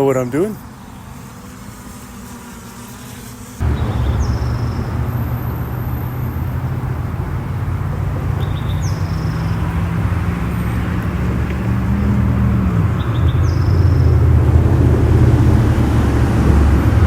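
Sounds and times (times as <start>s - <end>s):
drone propellers humming: 3.6s - 17.0s.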